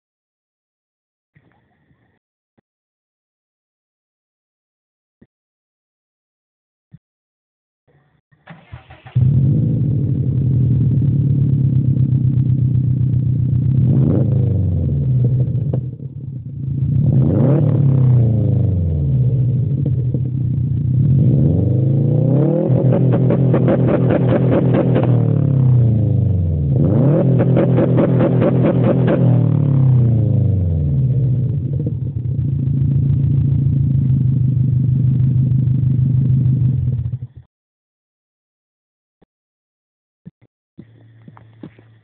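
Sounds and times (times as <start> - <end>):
car engine idling and revving: 8.7 - 37.4.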